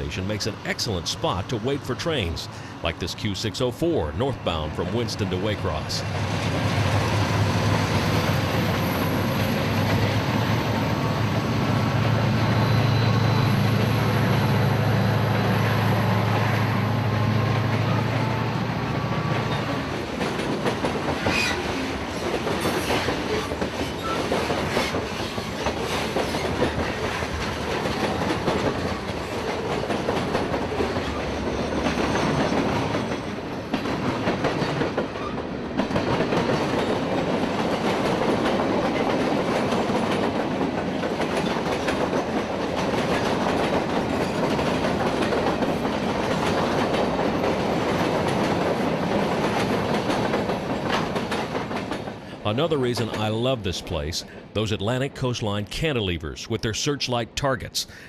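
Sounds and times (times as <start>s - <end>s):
diesel locomotive engines droning: 0.0s - 58.0s
train wheels clicking over rail joints: 19.2s - 52.4s.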